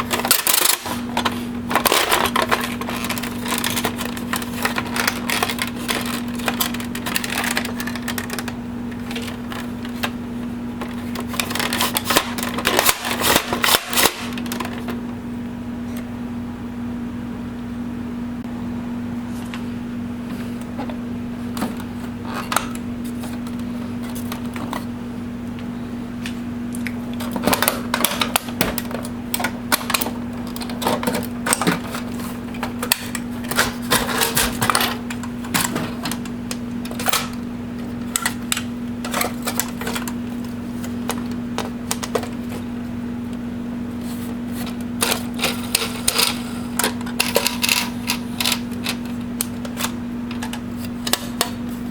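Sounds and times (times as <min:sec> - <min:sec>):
plastic parts clicking and clattering: 0:00.0 - 0:10.2, 0:10.8 - 0:15.0, 0:27.2 - 0:37.4, 0:38.0 - 0:40.2, 0:40.8 - 0:42.6, 0:44.6 - 0:51.6
steady low hum: 0:00.0 - 0:51.9.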